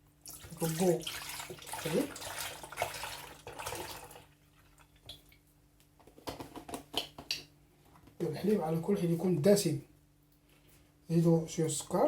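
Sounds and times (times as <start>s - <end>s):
milk pouring into a pan: 0.3s - 5.3s.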